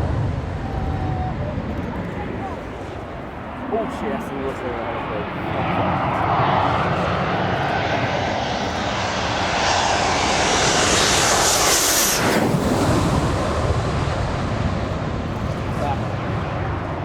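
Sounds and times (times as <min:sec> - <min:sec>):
jet engines high-pitched hiss: 0:03.4 - 0:17.0.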